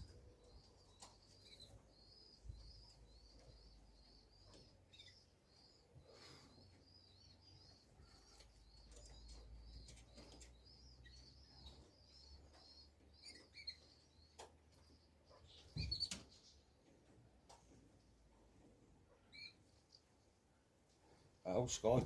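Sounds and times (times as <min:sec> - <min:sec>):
songbird chirping: 0:00.0 - 0:22.0.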